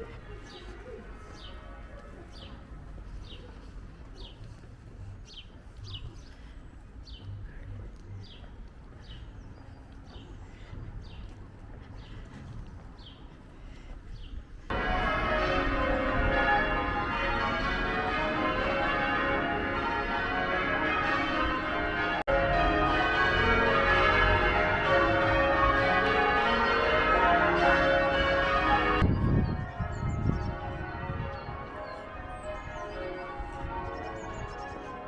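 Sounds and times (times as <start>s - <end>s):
church bells pealing: 0.0s - 5.0s, 14.7s - 35.0s.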